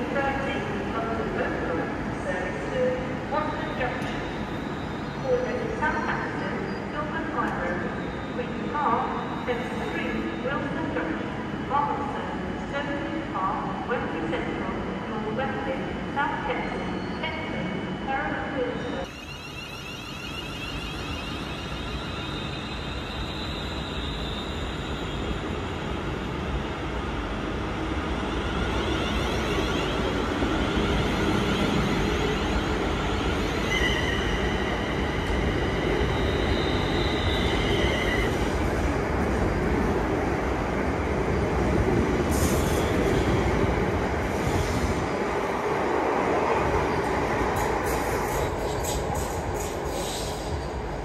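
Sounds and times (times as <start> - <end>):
wheels squealing on rails: 4.0 - 5.3, 19.0 - 26.0, 28.7 - 38.6, 47.6 - 50.8.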